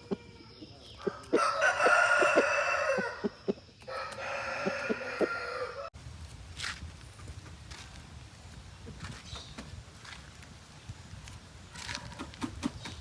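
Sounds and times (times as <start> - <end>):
rooster crowing: 1.1 - 5.9.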